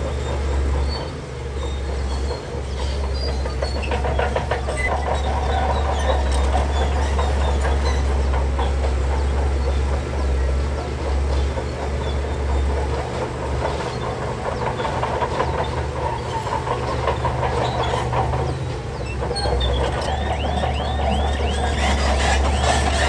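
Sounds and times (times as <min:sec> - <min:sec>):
bulldozer diesel engine: 0:00.0 - 0:23.0
steel tracks clanking over stone: 0:00.1 - 0:23.0
short falling squeals: 0:19.0 - 0:23.0.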